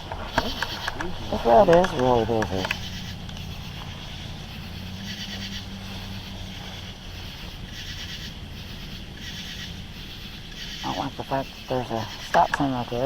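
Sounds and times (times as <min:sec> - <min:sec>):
night insects chorus: 0:00.0 - 0:13.0
steady low hum: 0:00.0 - 0:13.0.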